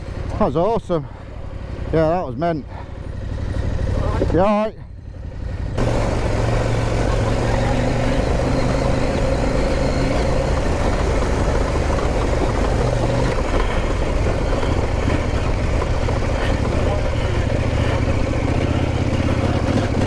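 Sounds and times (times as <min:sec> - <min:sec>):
motorcycle engine running: 0:00.0 - 0:20.0
constant rushing noise: 0:05.4 - 0:20.0.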